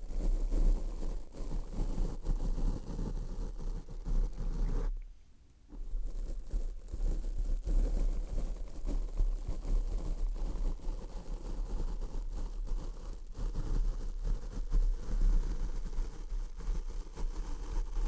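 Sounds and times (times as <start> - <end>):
scratchy rubbing on microphone: 0.0 - 5.0, 5.7 - 18.0.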